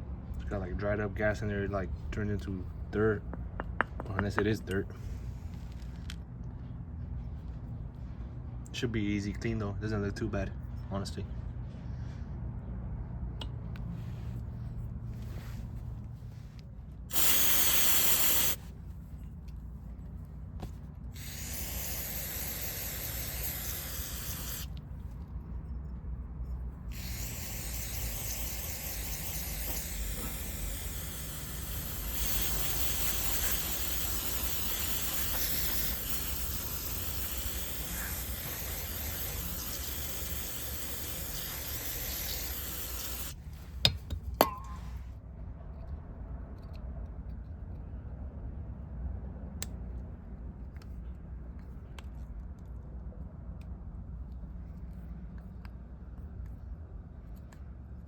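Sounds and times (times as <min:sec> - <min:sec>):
aerosol spraying: 0:17.1 - 0:18.7, 0:20.6 - 0:24.7, 0:26.9 - 0:43.4.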